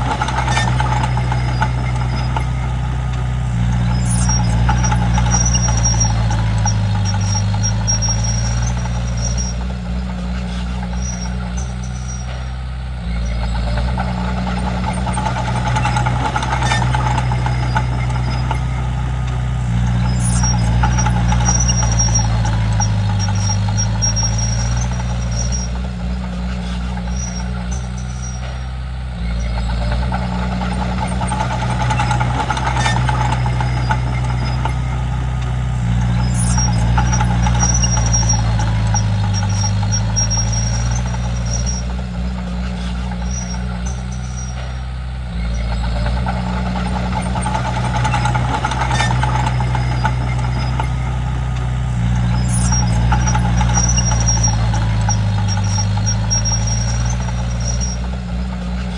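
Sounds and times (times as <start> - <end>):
bulldozer diesel engine running: 0.0 - 58.9
faint high-pitched squeal: 35.9 - 58.9.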